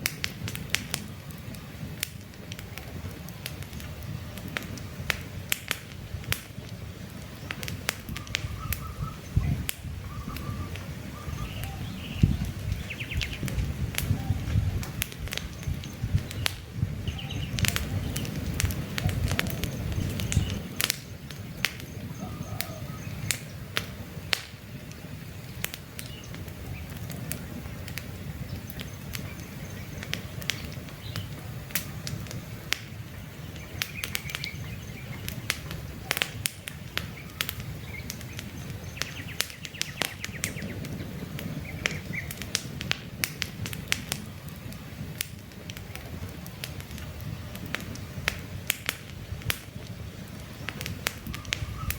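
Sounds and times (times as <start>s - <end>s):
campfire crackling and popping: 0.0s - 51.9s
faint bird chirps: 8.1s - 13.4s, 51.3s - 51.9s.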